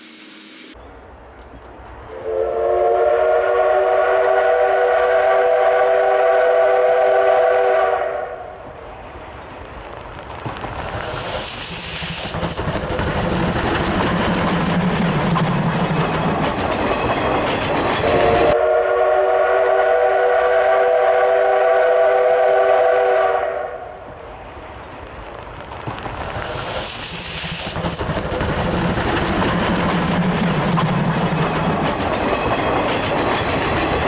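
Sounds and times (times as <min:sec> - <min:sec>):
train wheel noise: 0:00.0 - 0:34.0
steam locomotive exhaust beats: 0:01.9 - 0:34.0
multi-tone steam whistle: 0:02.1 - 0:08.6, 0:18.0 - 0:24.0.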